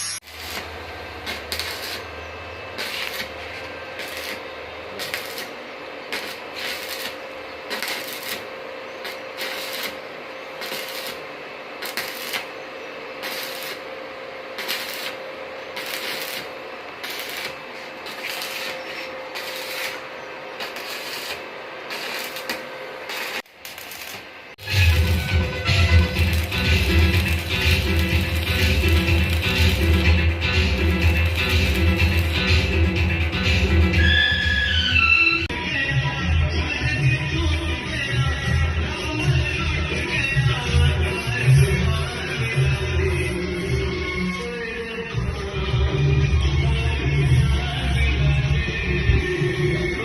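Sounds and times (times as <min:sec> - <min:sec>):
crackling bursts: 0:00.0 - 0:02.1, 0:02.7 - 0:12.6, 0:13.2 - 0:13.9, 0:14.5 - 0:33.7
steady metalworking hiss: 0:00.0 - 0:12.6, 0:13.2 - 0:13.9, 0:14.5 - 0:33.3.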